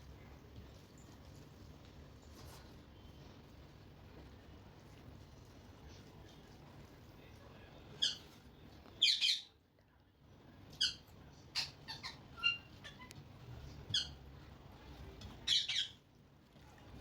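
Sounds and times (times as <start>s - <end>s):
parrot squawking: 9.0s - 9.5s, 10.7s - 13.1s, 13.9s - 14.2s, 15.4s - 16.0s.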